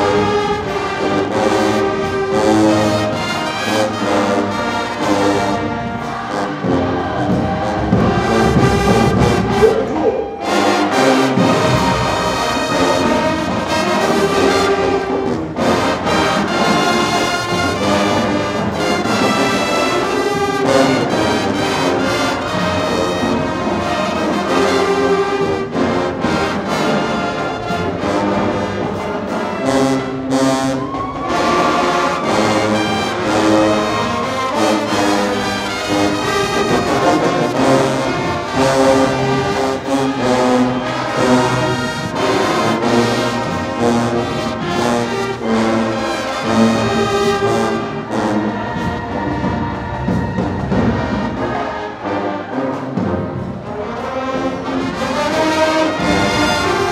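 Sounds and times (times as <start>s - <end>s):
brass chords: 0.0s - 56.9s
marching band playing: 0.0s - 56.9s
drum hits: 6.6s - 13.6s.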